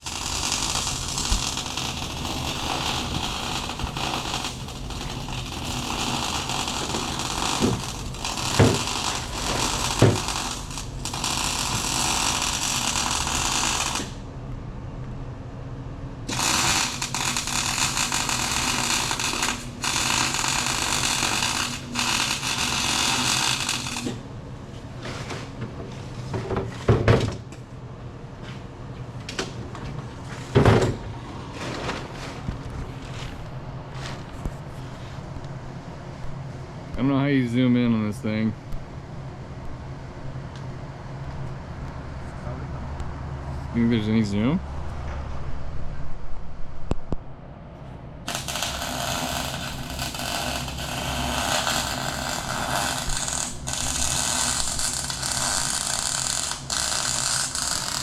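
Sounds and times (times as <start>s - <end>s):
power tool hissing: 0.0s - 14.2s, 16.3s - 24.1s, 48.3s - 58.0s.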